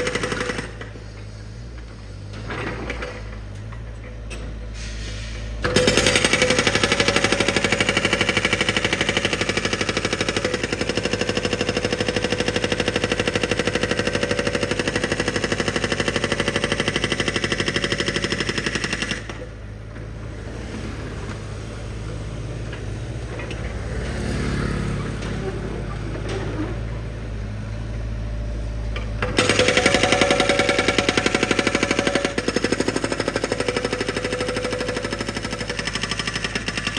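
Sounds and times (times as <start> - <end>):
drill hammer pounding: 5.6 - 19.5, 29.2 - 36.9.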